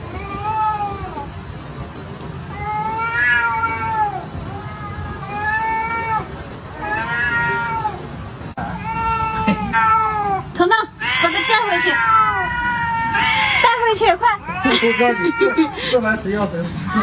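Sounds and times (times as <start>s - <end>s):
low background noise: 0.0s - 17.0s
cat yowling: 2.5s - 15.8s.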